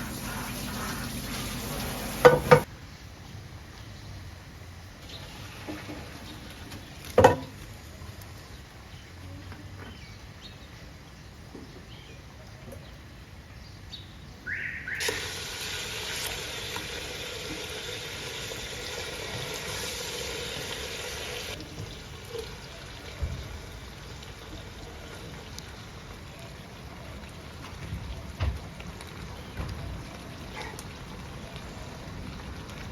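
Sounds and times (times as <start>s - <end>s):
water running in a stream: 0.0s - 2.7s, 5.0s - 8.8s, 14.5s - 32.9s.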